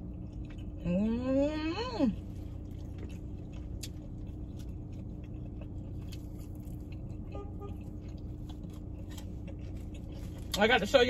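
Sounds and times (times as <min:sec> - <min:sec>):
low hum inside car: 0:00.0 - 0:11.0
person chewing crispy food: 0:00.0 - 0:11.0
food tearing crackles: 0:02.2 - 0:07.2.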